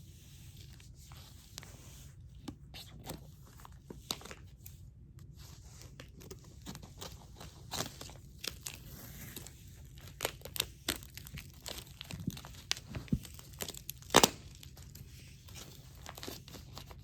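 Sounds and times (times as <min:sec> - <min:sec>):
packaging crinkling and tearing: 0:06.0 - 0:17.0.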